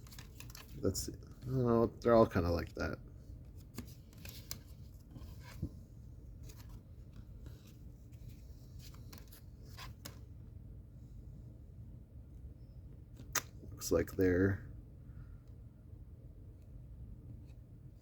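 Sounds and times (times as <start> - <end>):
cardboard cards shuffled: 0.0 - 1.6, 3.5 - 5.8, 6.4 - 10.2.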